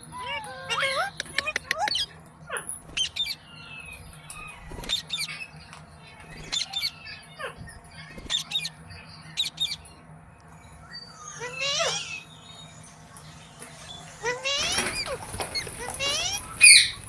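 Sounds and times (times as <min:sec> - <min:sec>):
parakeet squawking: 0:11.1 - 0:12.4, 0:14.1 - 0:17.0.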